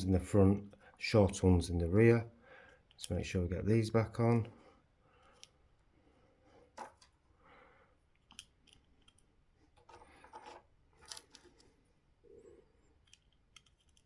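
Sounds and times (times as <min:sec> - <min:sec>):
small screws clicking and tapping: 0:08.1 - 0:11.7, 0:12.9 - 0:14.0.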